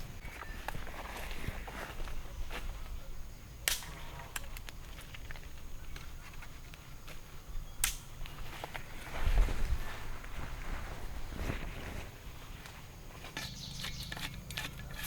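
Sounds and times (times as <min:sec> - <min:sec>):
sharp cracks: 0:03.6 - 0:04.7, 0:07.8 - 0:08.1
rustling: 0:08.2 - 0:15.0.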